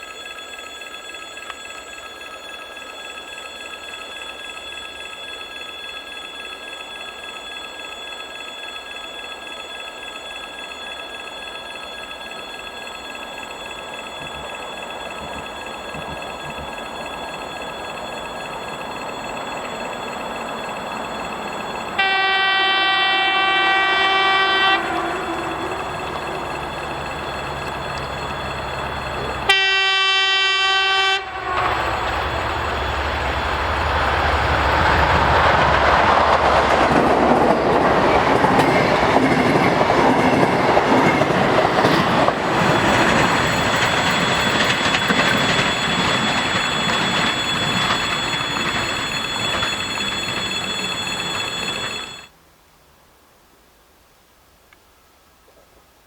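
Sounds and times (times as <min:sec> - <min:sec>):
train wheels on rail clattering: 0:03.6 - 0:52.3
train horn blasts: 0:22.0 - 0:34.0.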